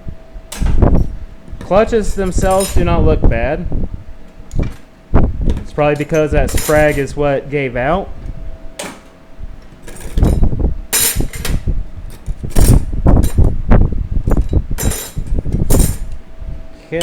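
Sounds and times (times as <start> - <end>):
metal clutch plates clinking: 2.4 - 3.0, 5.9 - 7.1.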